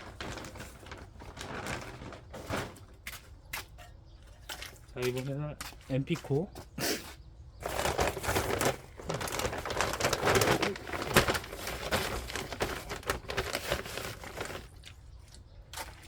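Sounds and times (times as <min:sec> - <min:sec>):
granules rustling in a bag: 0:00.0 - 0:03.0, 0:07.6 - 0:15.0.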